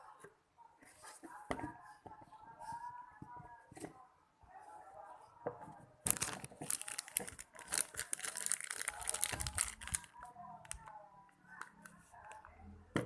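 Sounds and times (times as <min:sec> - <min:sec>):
packaging crinkling: 0:06.1 - 0:10.2.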